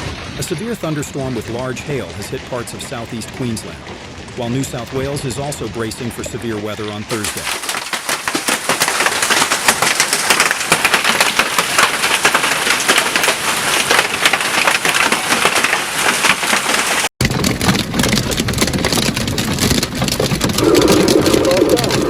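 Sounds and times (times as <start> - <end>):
low rumble: 0.0 - 7.4
hail clattering on hard surfaces: 0.0 - 22.0.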